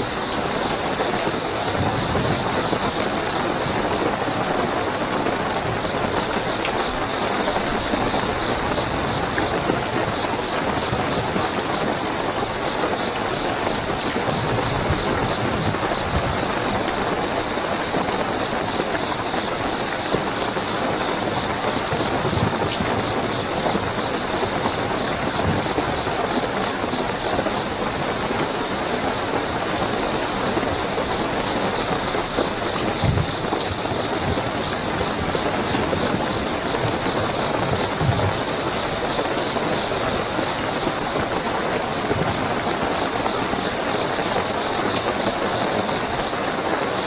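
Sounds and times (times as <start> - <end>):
cricket trill: 0.0 - 47.0
heavy rainfall: 0.0 - 47.0.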